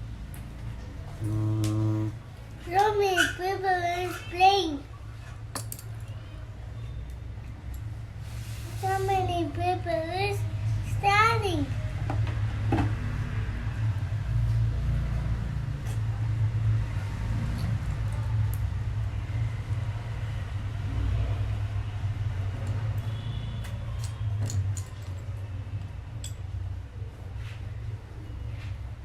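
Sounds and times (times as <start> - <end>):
low hum: 1.2 - 2.3.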